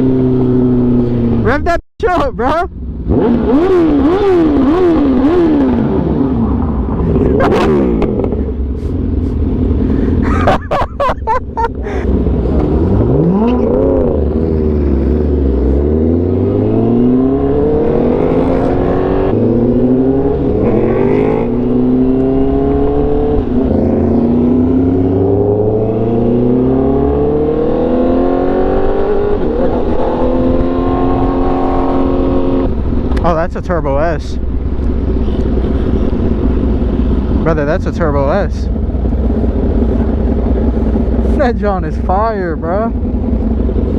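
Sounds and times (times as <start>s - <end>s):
engine revving and accelerating: 3.0s - 10.2s, 11.9s - 33.2s
exhaust crackles: 32.6s - 43.9s.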